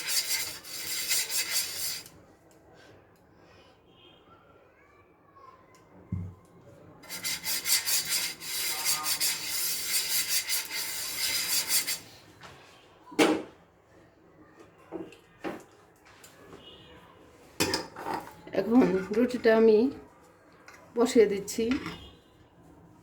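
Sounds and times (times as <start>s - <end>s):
brush rubbing on a pan: 0.0s - 2.1s, 7.0s - 12.1s.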